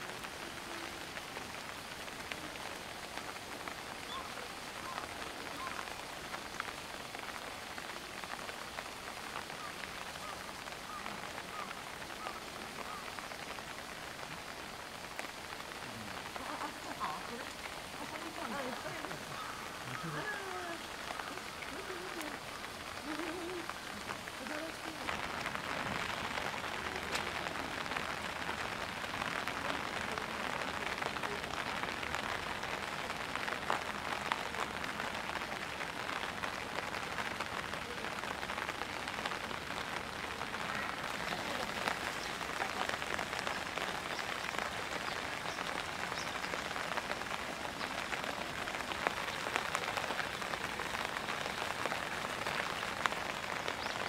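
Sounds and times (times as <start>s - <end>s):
pouring rain hiss: 0.0s - 54.0s
single raindrop ticks: 26.4s - 27.5s.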